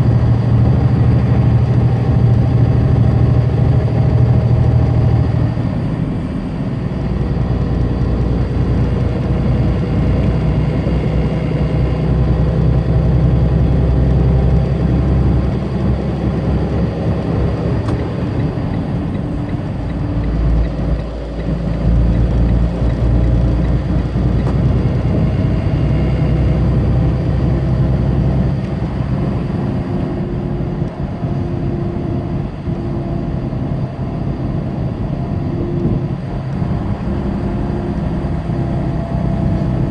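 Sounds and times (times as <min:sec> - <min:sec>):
road noise: 0:00.0 - 0:39.9
truck diesel engine under load: 0:00.0 - 0:39.9.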